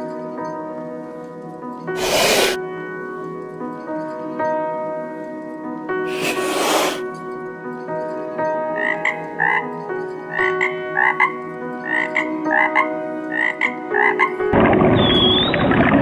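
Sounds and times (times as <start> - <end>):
rushing noise: 2.0 - 2.6
frog croaking: 8.8 - 9.7, 10.3 - 16.0
arching whistle: 15.0 - 15.8.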